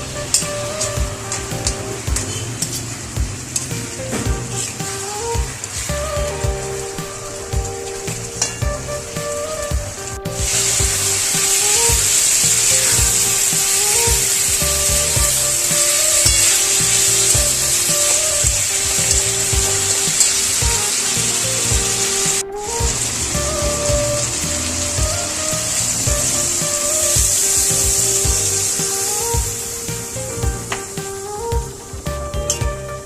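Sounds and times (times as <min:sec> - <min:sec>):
background music with a beat: 0:00.0 - 0:33.0
food sizzling in a pan: 0:10.4 - 0:30.2.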